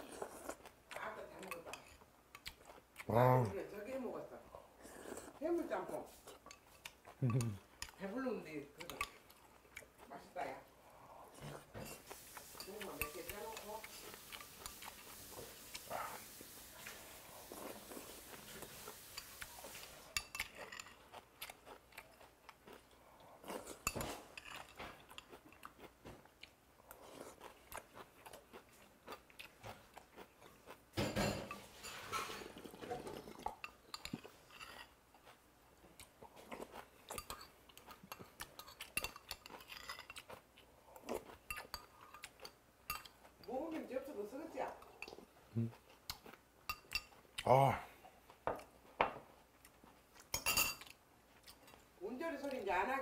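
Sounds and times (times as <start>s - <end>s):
close chewing and crunching: 0.0s - 53.0s
metal spoon clinking ceramic bowl: 50.3s - 50.8s.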